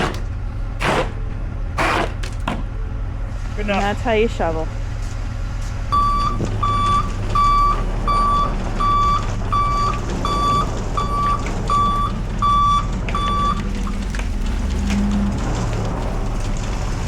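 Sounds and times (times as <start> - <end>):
vehicle engine rumbling: 0.0 - 17.0
backup alarm beeping: 5.9 - 14.2.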